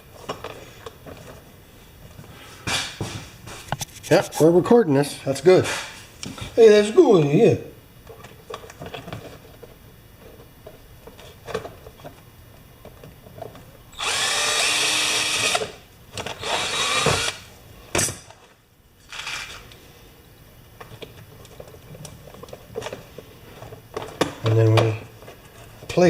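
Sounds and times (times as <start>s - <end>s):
quiet handling sounds: 0.0s - 13.9s, 19.2s - 26.0s
electric drill running: 14.0s - 15.8s, 16.4s - 17.5s.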